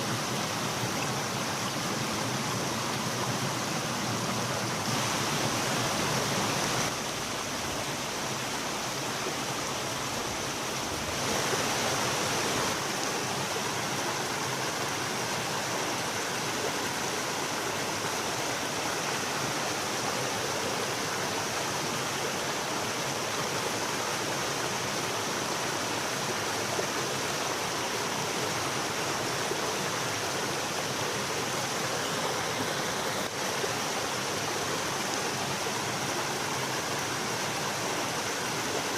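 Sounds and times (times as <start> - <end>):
stream rushing water: 0.0 - 38.9.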